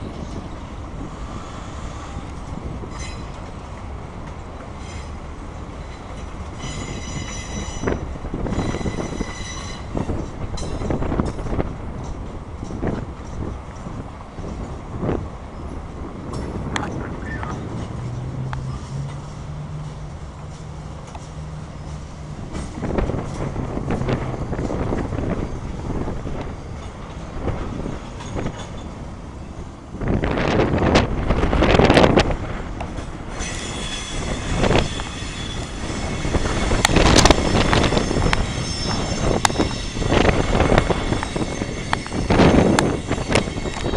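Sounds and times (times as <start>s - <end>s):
freight train cars rumbling: 0.0s - 43.9s
wheels clacking over rail joints: 0.1s - 43.9s
train wheels squealing: 2.9s - 3.5s, 4.8s - 5.2s, 5.8s - 11.0s, 33.3s - 43.9s.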